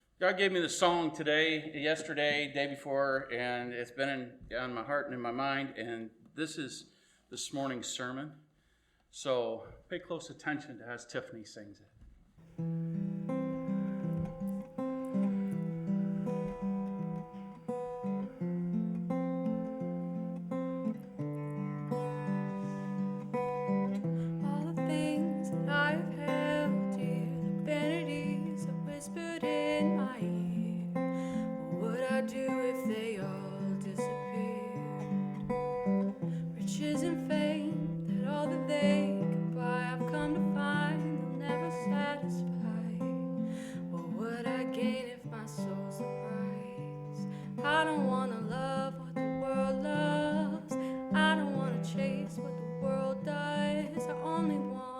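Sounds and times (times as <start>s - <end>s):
acoustic guitar: 12.0s - 54.9s
person singing: 22.0s - 35.5s, 36.3s - 54.9s.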